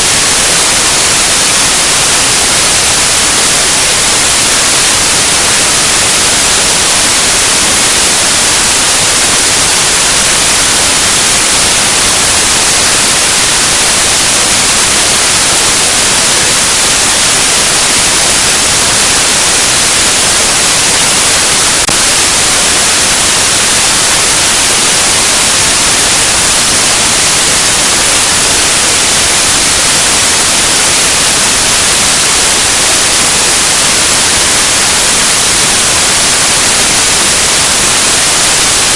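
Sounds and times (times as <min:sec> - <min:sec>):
loud static hiss: 0:00.0 - 0:38.9.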